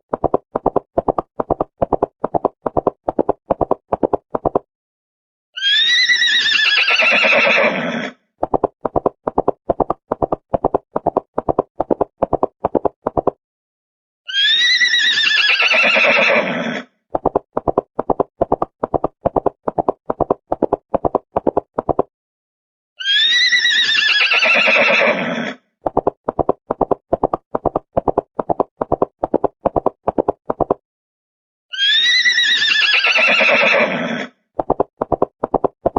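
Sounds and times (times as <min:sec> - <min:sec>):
horse whinnying: 0:05.6 - 0:08.2, 0:14.3 - 0:16.9, 0:23.0 - 0:25.6, 0:31.7 - 0:34.4.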